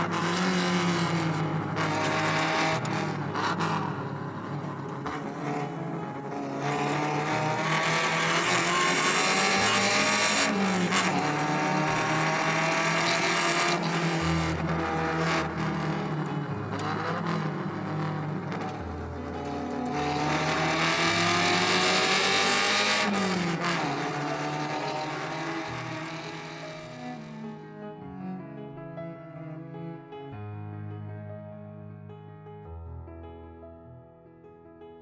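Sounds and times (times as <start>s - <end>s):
car engine accelerating: 0.0s - 27.5s.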